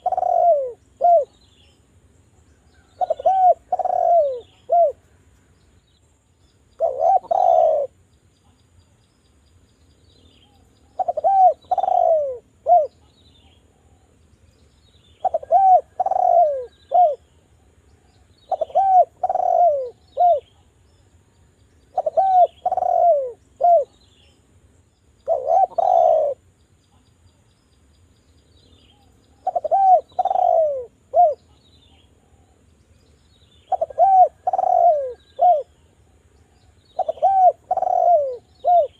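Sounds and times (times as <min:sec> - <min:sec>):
dove cooing: 0:00.0 - 0:01.4, 0:02.8 - 0:05.0, 0:06.8 - 0:08.0, 0:10.8 - 0:13.0, 0:15.2 - 0:17.3, 0:18.5 - 0:20.6, 0:21.9 - 0:24.0, 0:25.2 - 0:26.4, 0:28.9 - 0:32.6, 0:33.6 - 0:38.9.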